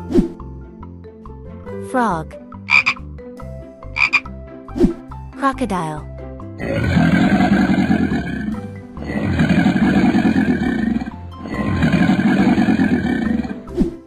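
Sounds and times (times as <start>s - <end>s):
children's background music: 0.0s - 14.0s
crocodile growls: 6.6s - 13.8s.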